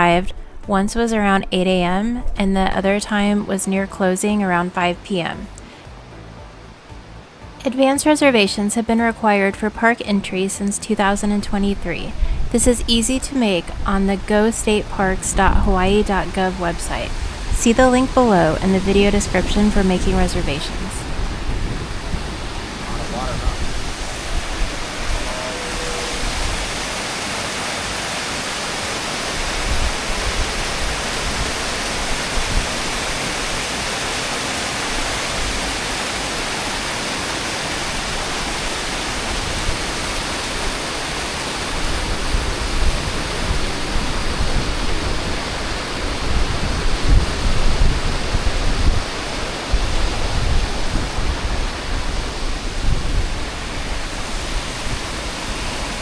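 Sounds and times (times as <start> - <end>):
stream flowing over rocks: 21.1 - 56.0.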